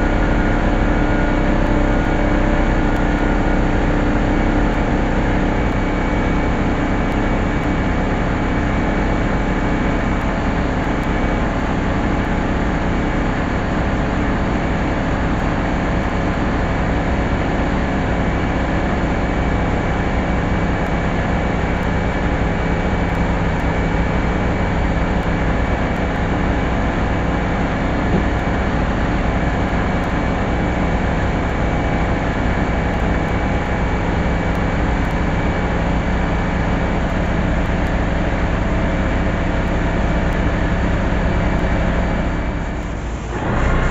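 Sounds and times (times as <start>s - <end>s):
machine humming: 0.0s - 16.3s.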